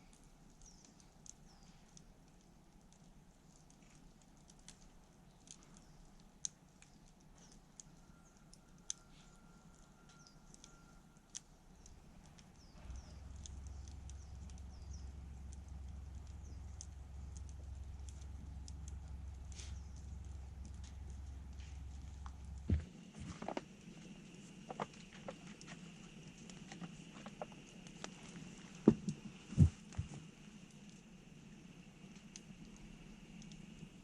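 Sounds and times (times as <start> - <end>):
campfire crackling and popping: 0.0 - 34.0
thin steady whistle: 7.8 - 12.0
low rumble: 11.8 - 28.0.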